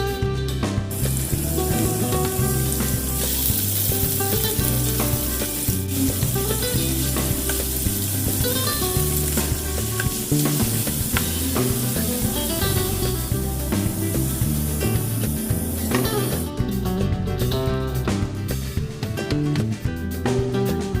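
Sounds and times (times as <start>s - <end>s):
background music with bass: 0.0s - 21.0s
food sizzling in a hot pan: 0.9s - 16.5s.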